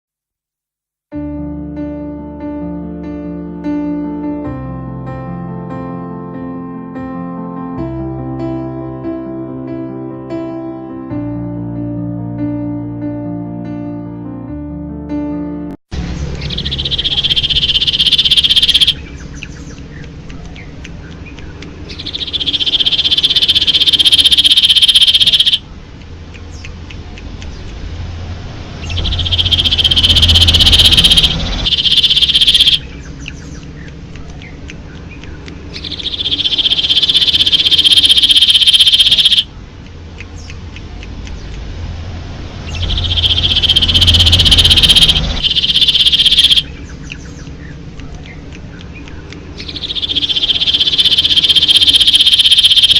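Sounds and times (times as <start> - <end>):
bird singing buzzy trills: 16.1 - 27.8, 28.8 - 41.6, 42.6 - 52.9.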